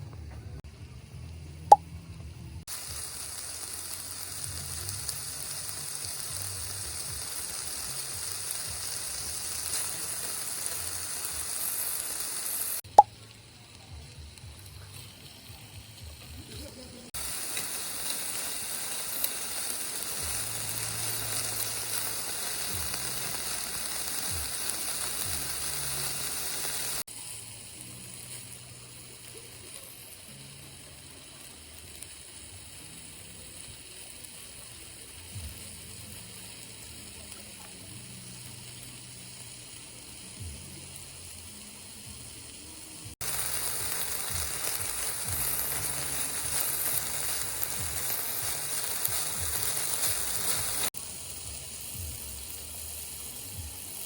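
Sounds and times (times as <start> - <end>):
food sizzling in a pan: 0.6 - 54.0.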